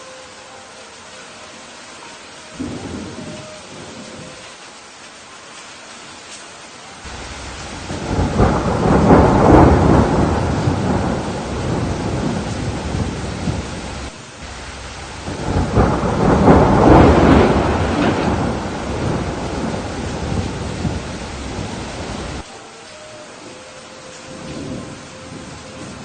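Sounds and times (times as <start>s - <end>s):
steady rain: 0.0s - 26.0s
thunder rolling: 2.6s - 4.4s, 7.1s - 22.4s.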